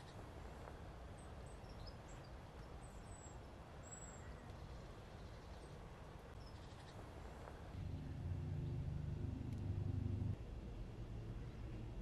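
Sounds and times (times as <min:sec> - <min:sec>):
steady low rumble: 0:07.7 - 0:12.0.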